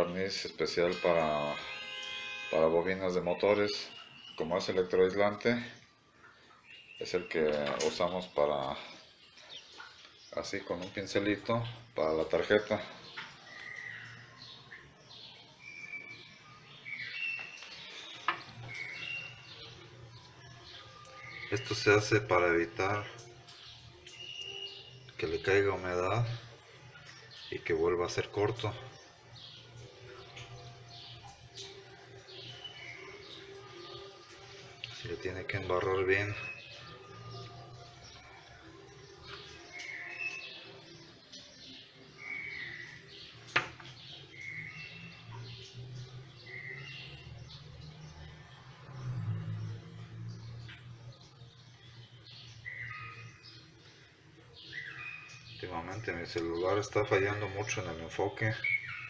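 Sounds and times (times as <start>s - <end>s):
birds chirping: 0.0s - 59.0s
bird whistling: 15.6s - 17.7s, 18.6s - 19.6s, 24.2s - 25.0s, 42.2s - 43.0s.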